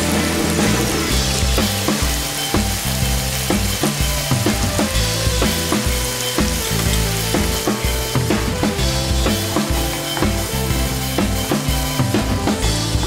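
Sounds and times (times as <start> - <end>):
background music with beat: 0.0 - 13.0
food sizzling in oil: 0.0 - 13.0.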